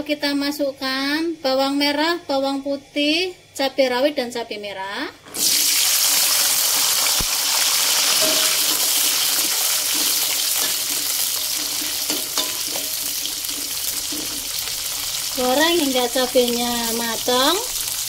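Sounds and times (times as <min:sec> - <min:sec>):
food sizzling in hot oil: 0:05.3 - 0:18.0.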